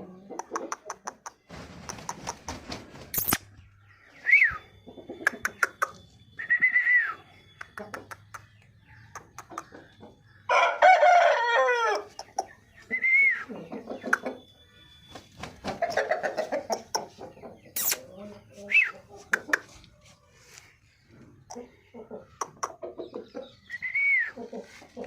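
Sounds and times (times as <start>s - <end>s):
rooster crowing: 10.5s - 12.1s.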